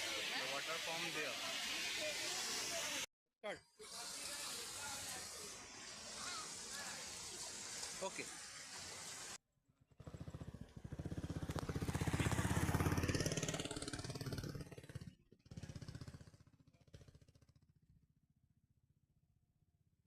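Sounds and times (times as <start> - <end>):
motorcycle engine running: 9.7 - 18.2.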